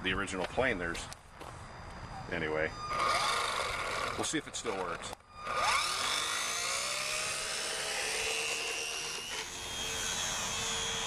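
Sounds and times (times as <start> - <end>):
model airplane motor whining: 2.7 - 11.0.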